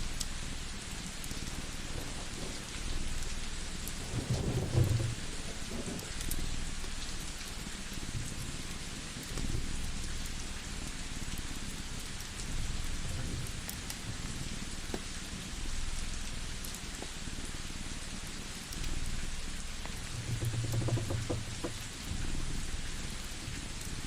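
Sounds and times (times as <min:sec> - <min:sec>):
rain-like hiss: 0:00.0 - 0:24.0.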